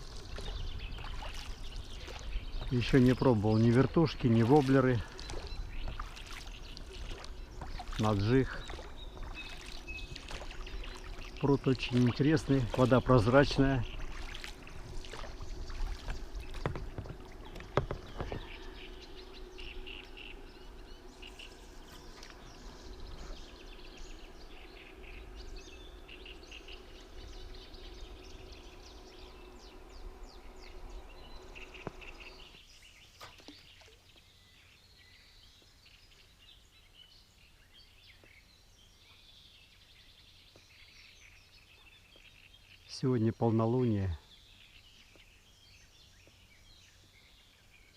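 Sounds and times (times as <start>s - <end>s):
low hum: 0.0s - 32.6s
birds chirping and singing: 0.0s - 47.9s.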